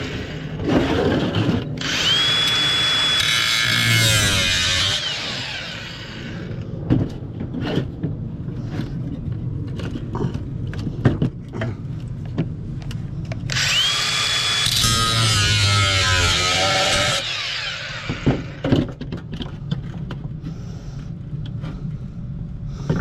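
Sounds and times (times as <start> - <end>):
power drill whining: 1.8 - 6.6, 13.5 - 18.6.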